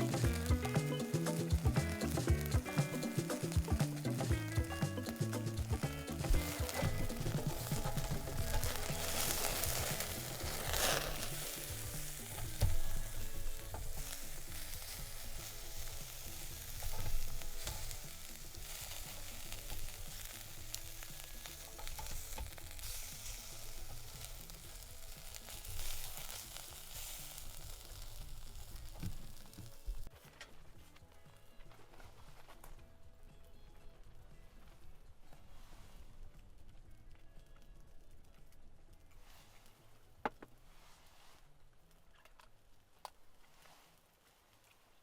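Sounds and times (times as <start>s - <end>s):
meat being stirred: 0.0s - 29.7s
meat sizzling: 0.0s - 30.1s.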